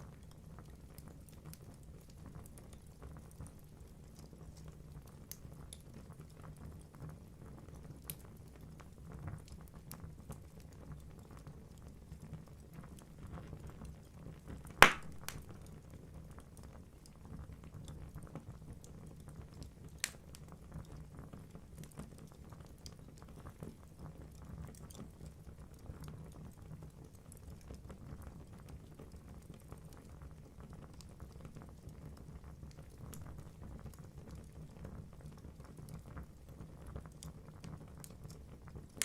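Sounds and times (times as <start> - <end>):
wood fire crackling: 0.0 - 39.0
sharp loud pop of fire: 14.8 - 15.7.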